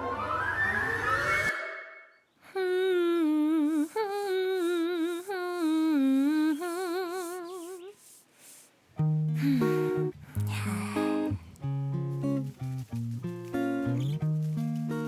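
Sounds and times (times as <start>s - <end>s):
high voice humming with vibrato: 2.4s - 8.2s, 9.4s - 11.6s
plucked acoustic guitar: 9.0s - 15.0s.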